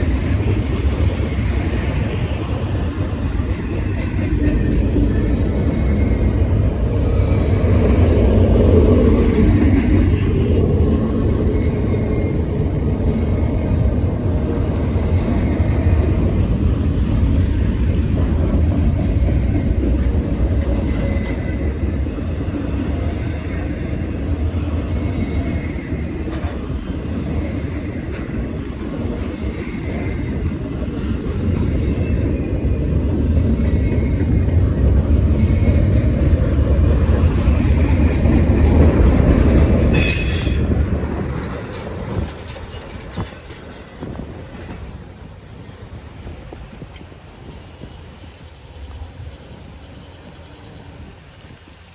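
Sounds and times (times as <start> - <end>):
freight train wheels rumbling: 0.0 - 51.9.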